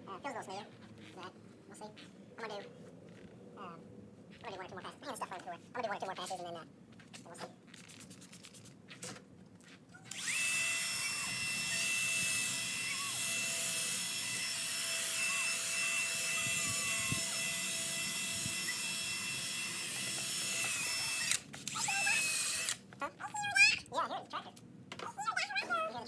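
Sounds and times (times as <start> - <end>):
drill sanding with high whine: 10.1 - 22.8.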